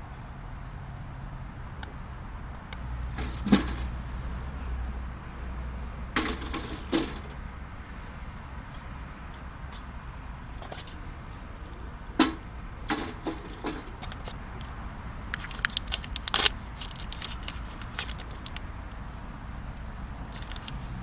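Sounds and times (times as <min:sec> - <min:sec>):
sharp clicks and metallic clinks: 0:03.1 - 0:04.0, 0:06.2 - 0:07.4, 0:12.2 - 0:19.0, 0:20.3 - 0:20.8.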